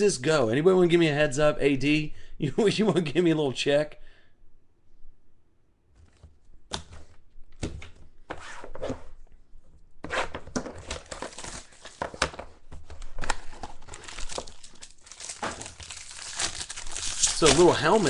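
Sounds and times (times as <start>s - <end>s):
plastic wrapper tearing and crinkling: 10.9s - 12.0s, 13.0s - 18.0s.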